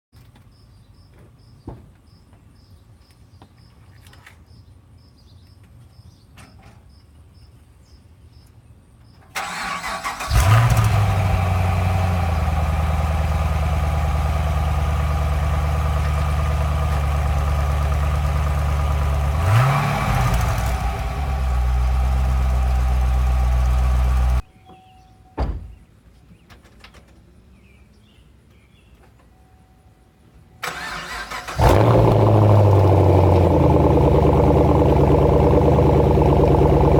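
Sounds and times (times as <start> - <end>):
car engine starting and idling: 9.3 - 24.4, 30.6 - 36.9
engine revving: 9.4 - 24.4, 30.7 - 36.9.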